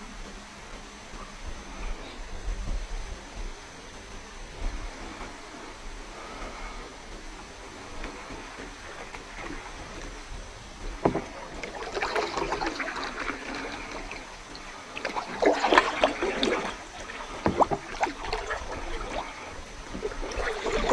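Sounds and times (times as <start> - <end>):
water dripping: 7.1 - 20.9
paddle splashing in water: 7.7 - 20.9
knock: 11.0 - 11.3.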